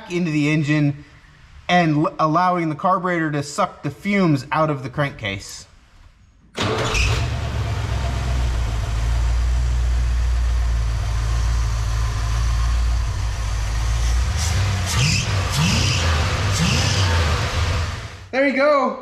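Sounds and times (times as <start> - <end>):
car engine idling: 6.6 - 18.3
engine revving: 6.6 - 18.3.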